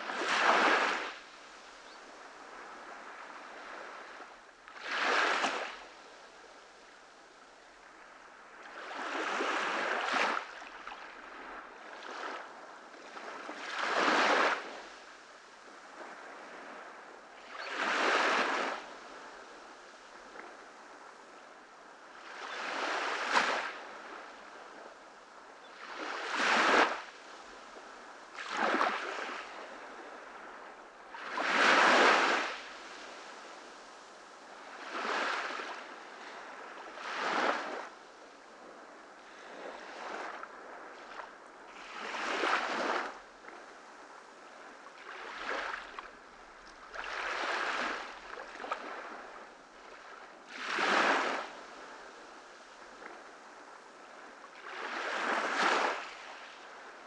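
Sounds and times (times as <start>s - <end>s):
ocean waves breaking: 46.9s - 51.5s.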